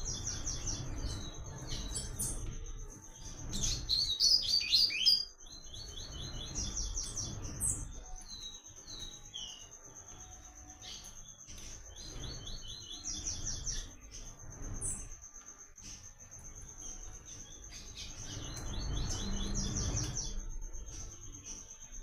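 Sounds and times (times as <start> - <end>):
high insect trill: 0.0 - 22.0
bird singing high notes: 3.6 - 9.7.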